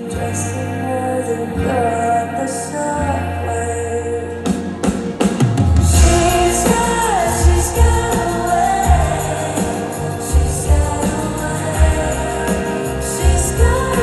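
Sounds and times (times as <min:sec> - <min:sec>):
pop band playing: 0:00.0 - 0:14.0
woman singing: 0:00.0 - 0:14.0
heavy bass notes: 0:04.0 - 0:14.0
drum hits: 0:04.5 - 0:11.2.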